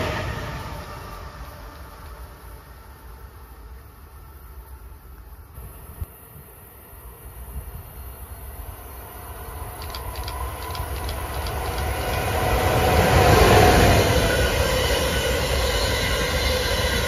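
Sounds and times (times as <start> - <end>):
high-speed train approaching: 0.0 - 17.0
faint high ticks: 9.4 - 12.4.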